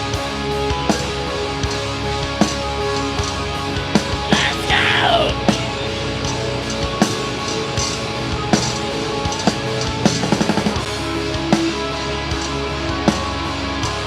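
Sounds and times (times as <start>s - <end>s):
drum kit: 0.0s - 14.0s
heavy guitar and bass: 0.0s - 14.0s.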